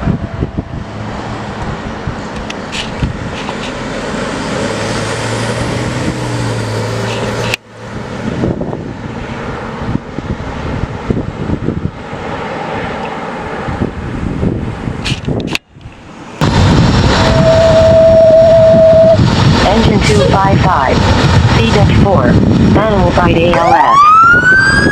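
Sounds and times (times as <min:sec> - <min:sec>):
fire engine droning: 0:00.0 - 0:14.9, 0:16.4 - 0:24.9
tyre and traffic noise: 0:00.0 - 0:16.5.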